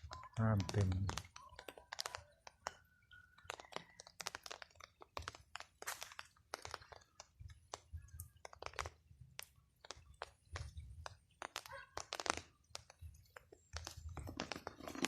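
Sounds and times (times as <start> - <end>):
faint clicks and crackles: 0.0 - 15.0.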